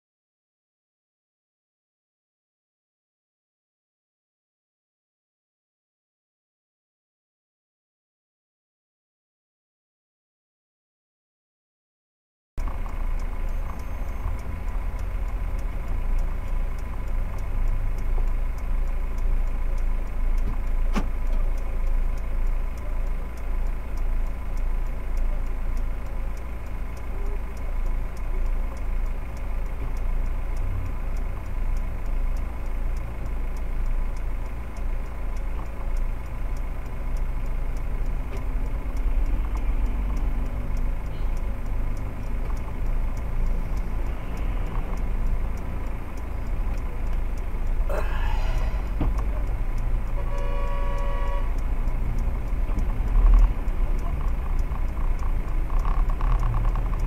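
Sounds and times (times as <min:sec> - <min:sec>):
car engine idling: 0:12.6 - 0:57.0
car horn blast: 0:50.2 - 0:51.6.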